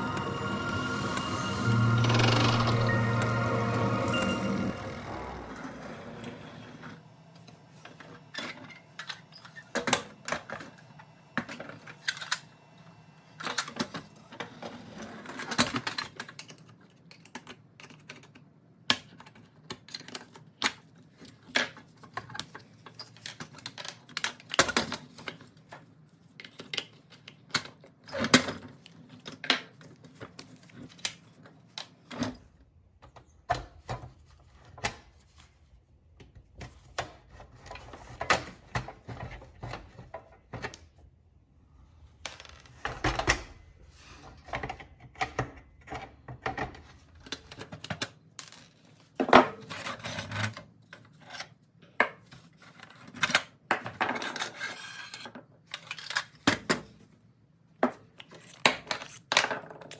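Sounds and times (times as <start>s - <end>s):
tools scraping metal wheels: 0.0s - 7.0s.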